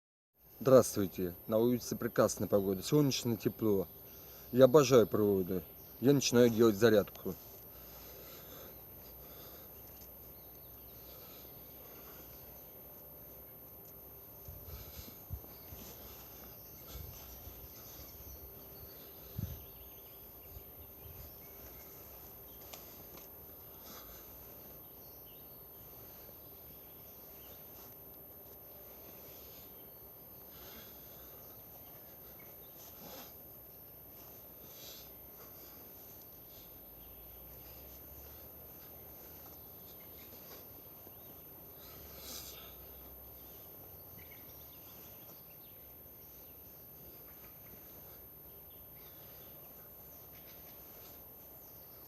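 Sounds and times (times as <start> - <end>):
distant bird calls: 0.7 - 52.0.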